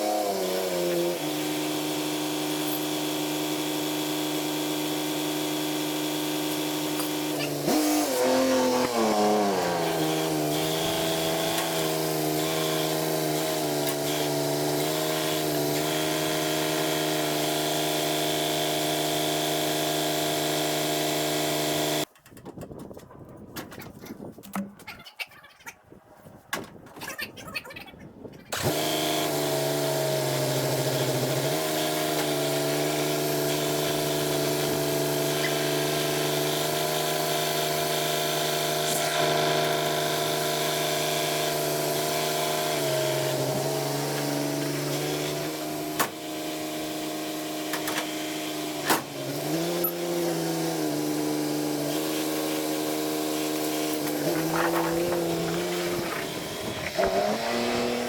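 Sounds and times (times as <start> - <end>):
farm machinery engine running: 28.6 - 58.0.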